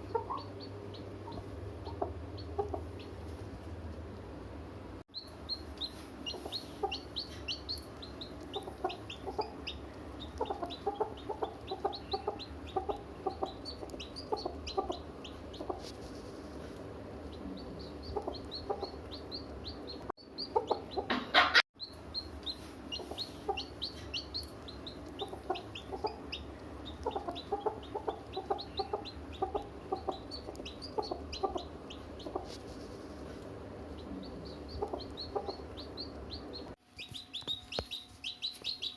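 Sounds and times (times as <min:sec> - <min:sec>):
hens clucking: 0:00.0 - 0:03.4, 0:05.4 - 0:16.6, 0:17.3 - 0:21.6, 0:22.5 - 0:36.8
chicks peeping: 0:00.0 - 0:03.7, 0:05.1 - 0:38.9
chicken squawk: 0:21.1 - 0:21.6.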